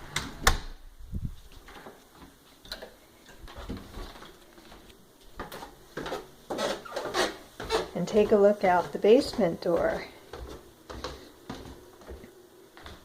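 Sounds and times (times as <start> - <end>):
footsteps on indoor stairs: 3.4 - 13.0.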